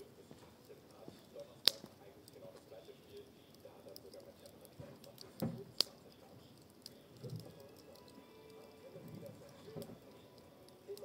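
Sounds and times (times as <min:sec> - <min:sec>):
wood fire crackling: 0:00.0 - 0:11.0
sharp crack: 0:01.6 - 0:02.4, 0:03.9 - 0:08.0.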